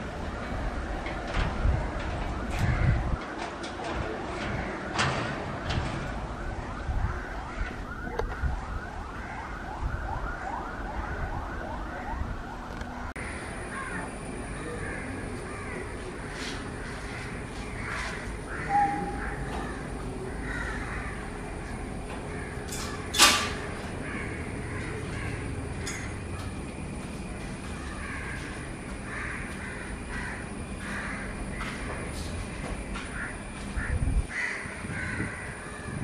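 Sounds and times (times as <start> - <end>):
steady background noise: 0.0 - 36.0
birds chirping: 13.2 - 36.0.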